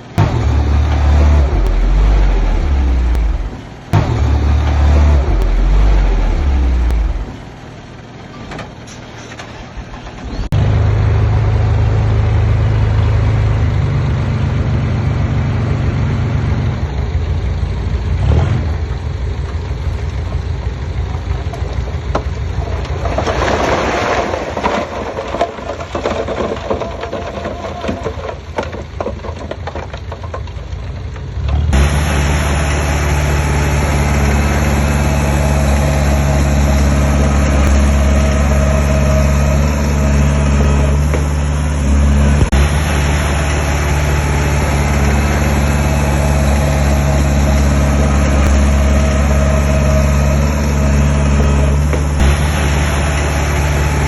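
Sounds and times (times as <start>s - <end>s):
heavy diesel engines droning: 0.0s - 54.0s
rough clatter: 21.1s - 54.0s.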